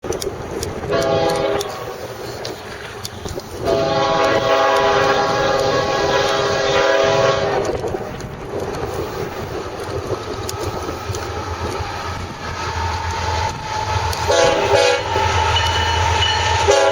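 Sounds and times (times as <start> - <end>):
train passing rumble: 0.0 - 16.9
locomotive horn blast: 0.9 - 2.1, 3.6 - 7.8, 14.3 - 16.9.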